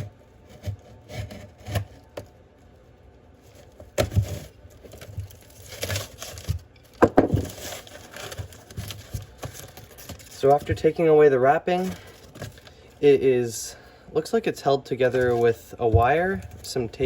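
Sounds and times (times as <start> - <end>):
paper wrapping tearing: 4.2 - 10.8
cardboard knocks: 7.0 - 7.6.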